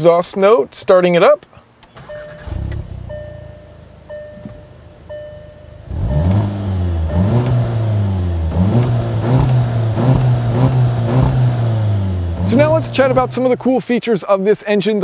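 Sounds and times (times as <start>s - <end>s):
car engine starting and revving: 1.8s - 13.8s
warning chime dinging: 2.0s - 8.4s.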